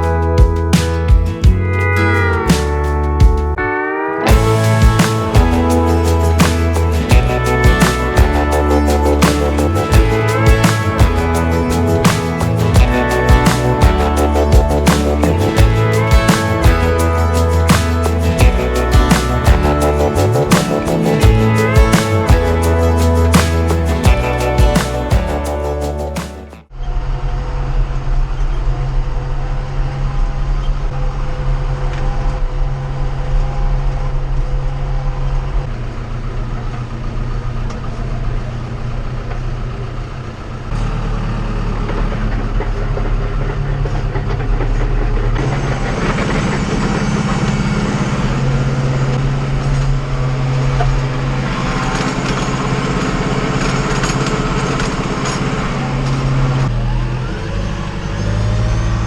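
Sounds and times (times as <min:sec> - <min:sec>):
tractor diesel engine running: 0:04.3 - 0:26.6.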